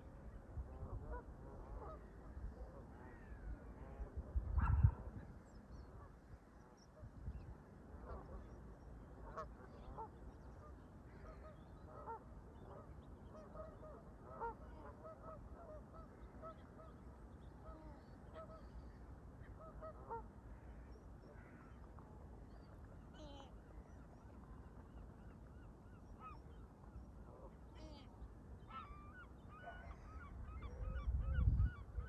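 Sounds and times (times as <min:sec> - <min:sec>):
low wind rumble: 0:00.0 - 0:08.8, 0:30.0 - 0:32.0.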